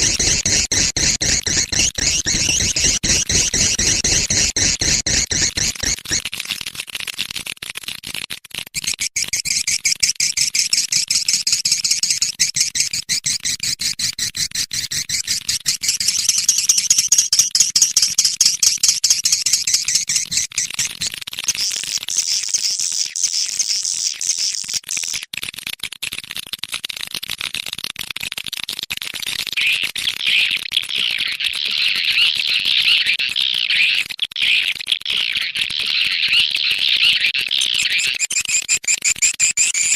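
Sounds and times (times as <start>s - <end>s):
swiftlets twittering chirps: 0.0s - 6.2s, 9.2s - 13.6s, 14.8s - 25.2s, 37.0s - 39.9s.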